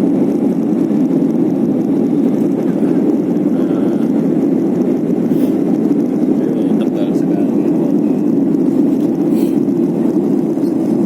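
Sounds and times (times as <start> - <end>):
airplane cabin roar: 0.0 - 11.0.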